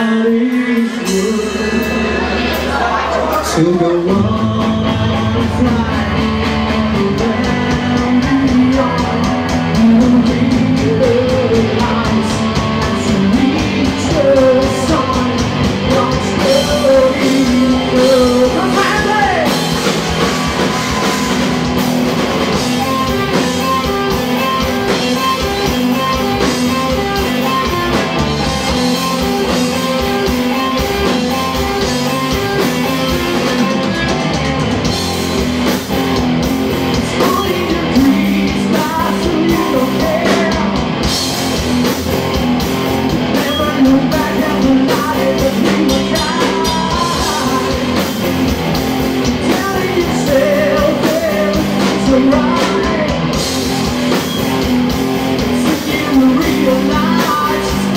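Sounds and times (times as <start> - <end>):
drum kit: 0.0 - 57.9
electric guitar: 0.0 - 57.9.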